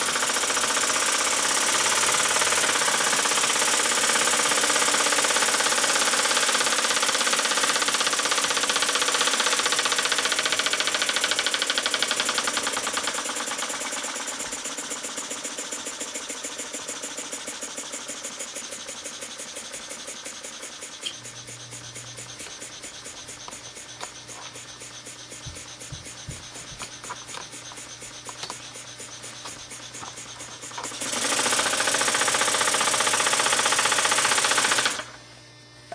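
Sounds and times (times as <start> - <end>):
model steam engine running fast: 0.0 - 35.2.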